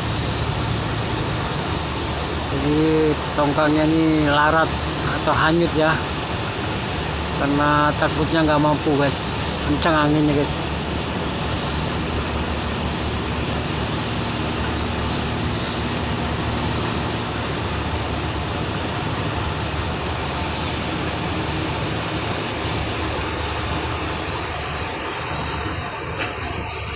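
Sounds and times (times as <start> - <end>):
boat engine running: 0.0 - 26.9.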